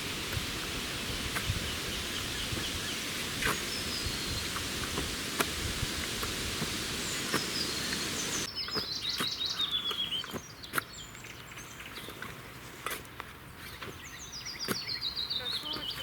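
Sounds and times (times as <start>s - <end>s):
steady hiss: 0.0s - 8.5s
songbird singing: 0.0s - 16.0s.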